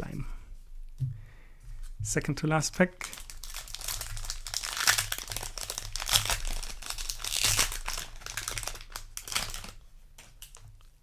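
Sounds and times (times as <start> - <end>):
foil wrapper crinkling: 2.7 - 10.8.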